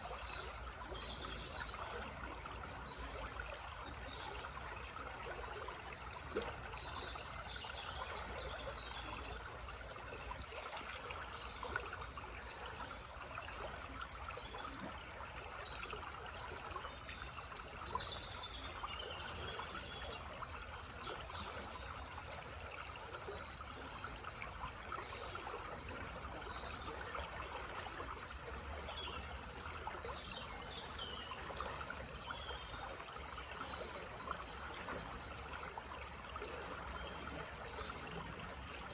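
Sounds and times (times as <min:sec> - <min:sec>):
stream trickling: 0:00.0 - 0:38.9.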